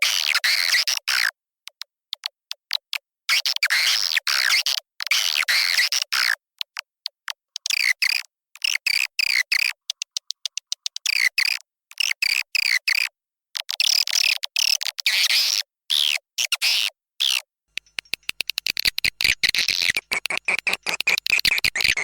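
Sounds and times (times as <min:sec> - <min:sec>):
rapid dry clicks: 0:09.6 - 0:11.1, 0:17.7 - 0:22.0
chattering bird twitters: 0:17.8 - 0:22.0.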